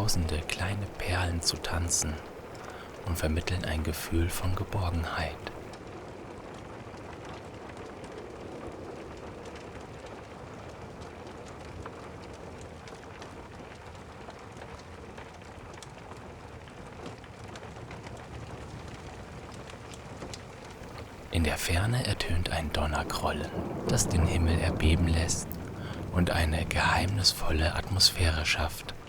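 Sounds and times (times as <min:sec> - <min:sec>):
fire crackling: 0:00.0 - 0:05.7, 0:20.8 - 0:29.0
rain: 0:00.0 - 0:29.0.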